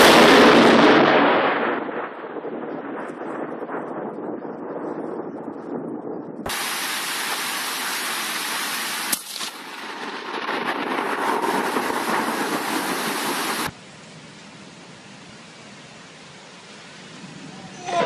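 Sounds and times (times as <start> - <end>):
heavy rain pouring: 6.5 - 13.8.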